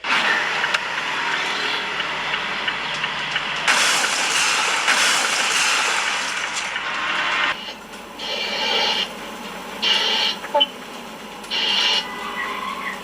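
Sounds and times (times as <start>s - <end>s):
vehicle road and engine noise: 0.0s - 13.0s.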